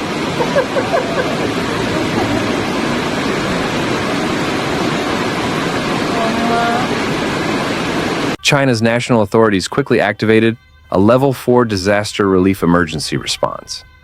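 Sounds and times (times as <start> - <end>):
floodwater rushing: 0.0 - 8.4.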